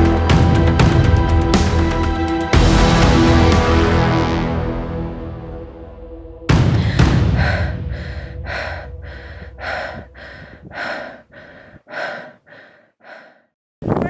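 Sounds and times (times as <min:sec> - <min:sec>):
low rumble: 0:02.6 - 0:11.8
person panting hard: 0:06.7 - 0:13.6.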